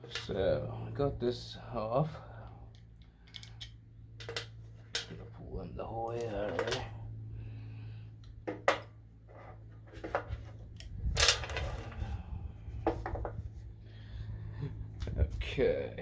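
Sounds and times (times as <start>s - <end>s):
steady low hum: 0.0s - 16.0s
metal tools clinking: 3.2s - 5.3s, 6.1s - 7.0s.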